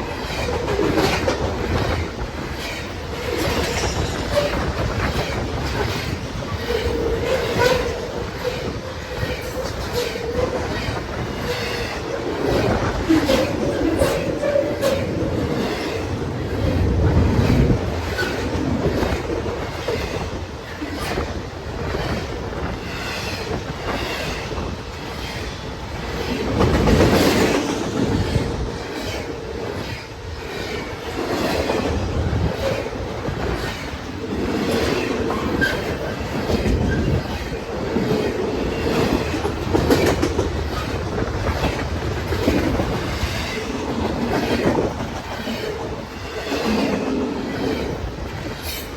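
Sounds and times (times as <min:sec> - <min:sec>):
train wheels clacking over rail joints: 0:00.0 - 0:48.9
train wheels squealing: 0:02.6 - 0:12.0, 0:35.3 - 0:37.6.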